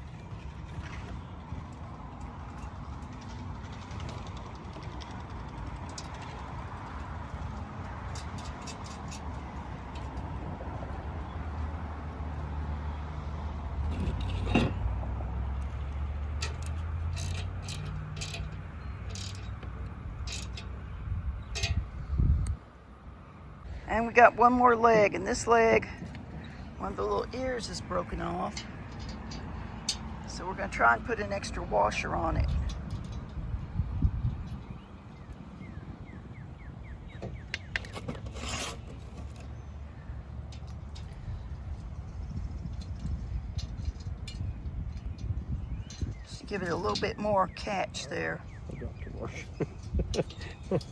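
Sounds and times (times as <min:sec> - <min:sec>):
metal bolts and washers clinking: 0:07.4 - 0:12.4, 0:13.8 - 0:21.9, 0:24.8 - 0:35.4, 0:37.1 - 0:39.6, 0:40.2 - 0:41.8, 0:42.6 - 0:50.9.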